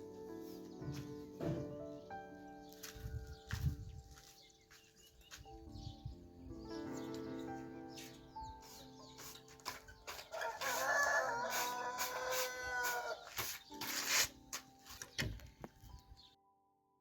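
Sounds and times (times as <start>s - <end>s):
faint background music: 0.0s - 17.0s
rooster crowing: 10.3s - 13.3s.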